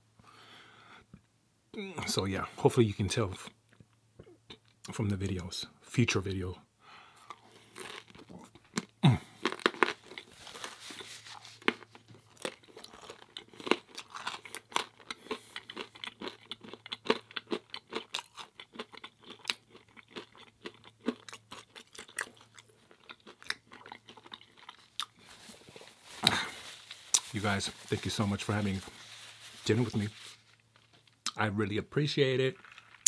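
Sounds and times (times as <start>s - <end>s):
person chewing crunchy food: 7.2s - 31.4s.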